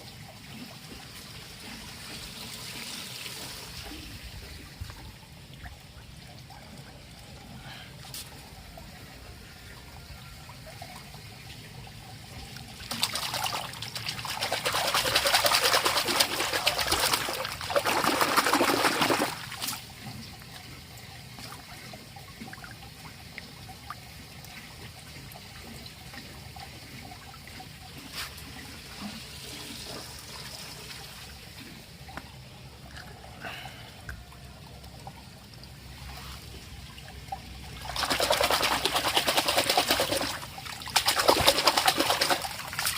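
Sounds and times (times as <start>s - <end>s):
water pouring and splashing: 0.0s - 42.9s.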